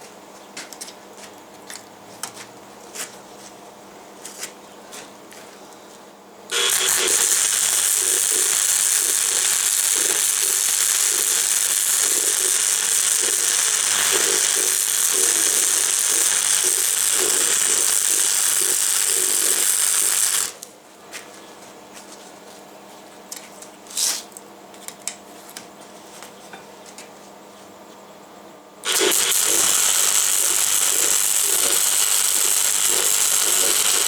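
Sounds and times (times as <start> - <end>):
low mains buzz: 0.0 - 34.0
electric arc welding crackling hiss: 6.5 - 20.6, 28.8 - 34.0.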